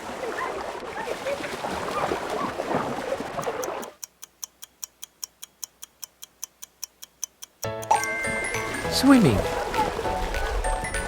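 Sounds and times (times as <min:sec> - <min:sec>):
water splashing: 0:00.0 - 0:04.0, 0:08.1 - 0:11.0
clock ticking: 0:03.4 - 0:08.2.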